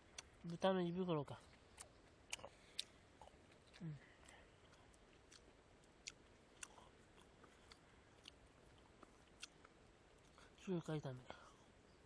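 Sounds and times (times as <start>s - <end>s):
faint close-up chewing: 0.0s - 0.6s, 1.3s - 10.7s.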